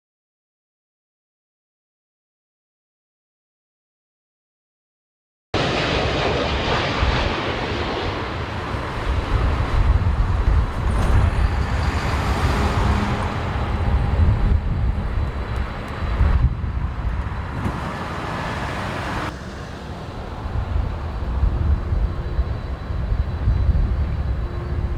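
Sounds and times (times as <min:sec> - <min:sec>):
jet engines on approach: 0:05.6 - 0:24.9
wind buffeting microphone: 0:06.0 - 0:24.9.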